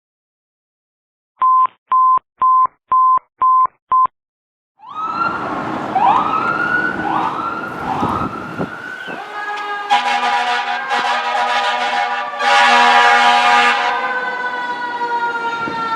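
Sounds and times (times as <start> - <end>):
fire engine siren: 4.8 - 15.9
deep air horn blast: 7.7 - 14.8.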